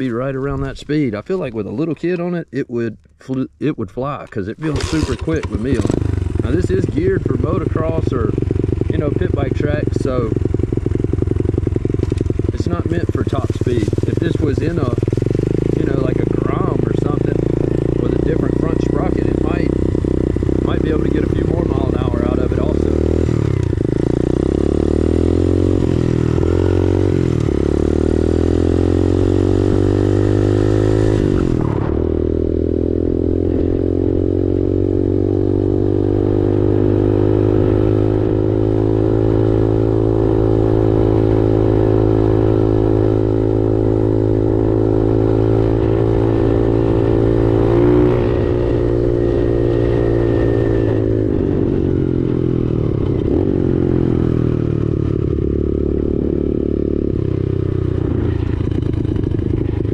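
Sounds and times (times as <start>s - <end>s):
pit bike engine accelerating: 4.5s - 59.9s.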